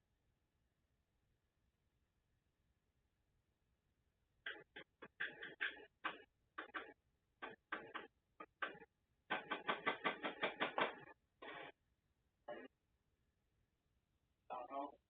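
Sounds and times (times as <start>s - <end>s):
tools knocking on metal parts: 4.5s - 11.1s.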